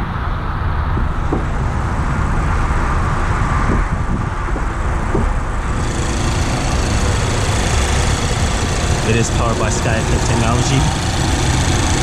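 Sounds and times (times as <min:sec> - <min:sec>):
car engine idling: 0:05.4 - 0:12.0.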